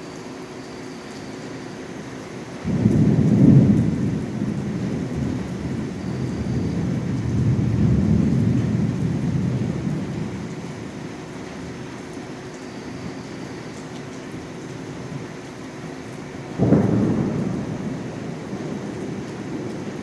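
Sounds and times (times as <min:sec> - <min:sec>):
thunder clap and rumble: 0:02.6 - 0:11.9, 0:16.2 - 0:20.0.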